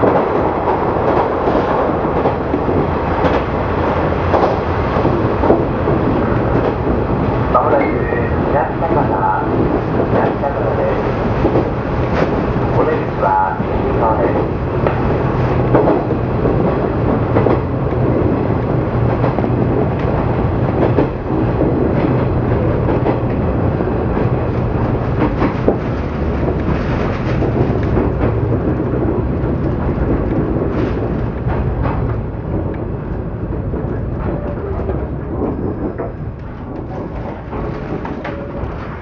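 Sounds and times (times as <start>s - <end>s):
train wheels on rail: 0.0s - 39.0s
clicks over rail joints: 8.9s - 39.0s.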